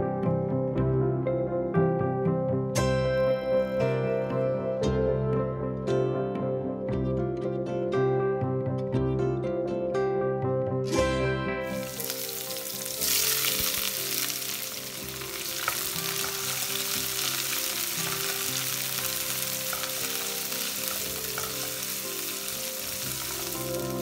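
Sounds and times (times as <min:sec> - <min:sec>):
onions sizzling in hot oil: 0:11.7 - 0:24.0.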